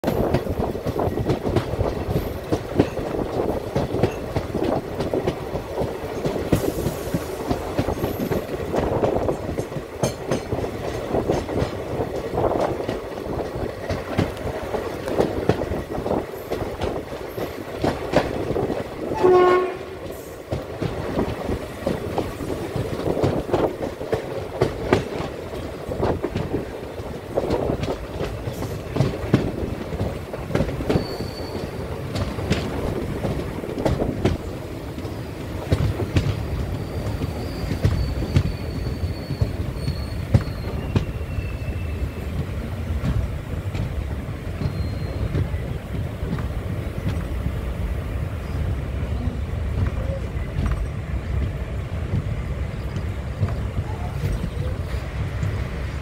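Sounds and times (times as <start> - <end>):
train wheels clattering: 0.0 - 47.5, 49.7 - 56.0
train horn blast: 19.1 - 20.1.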